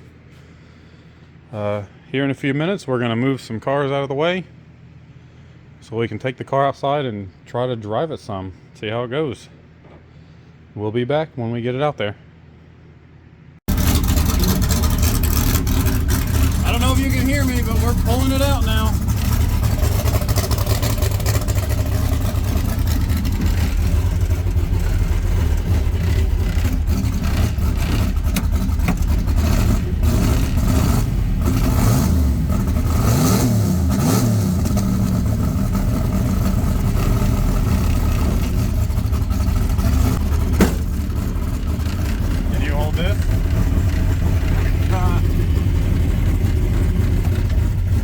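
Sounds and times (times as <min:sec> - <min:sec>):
car engine rumbling: 0:13.6 - 0:48.0.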